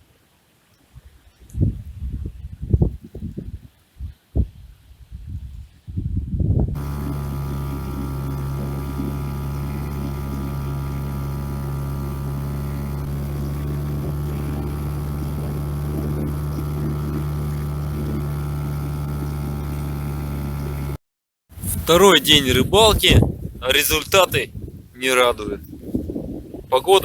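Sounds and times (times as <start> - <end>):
boat motor running: 6.7 - 21.0.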